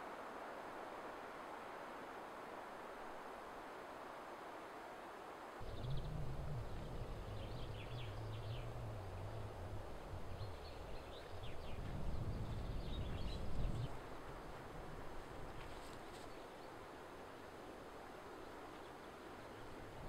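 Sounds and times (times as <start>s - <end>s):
small birds chirping: 5.6s - 14.0s
low outdoor rumble: 5.6s - 16.2s.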